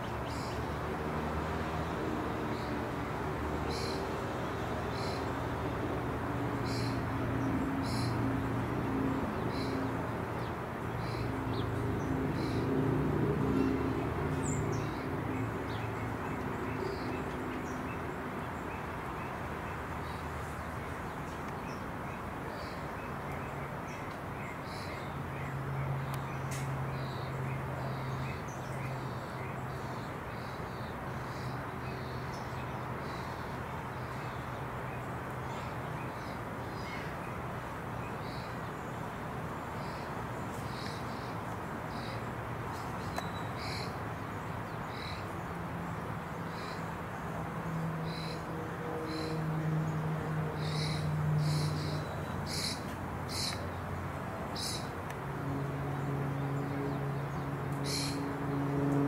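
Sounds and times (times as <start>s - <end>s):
birds calling: 50.6s - 53.8s, 54.5s - 55.0s, 57.8s - 58.3s.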